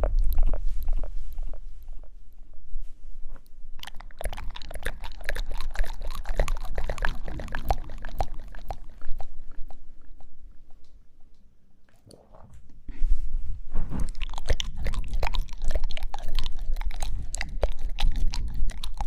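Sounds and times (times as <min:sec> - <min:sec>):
wet mouth clicks and smacks: 0:03.8 - 0:12.2, 0:14.1 - 0:19.0.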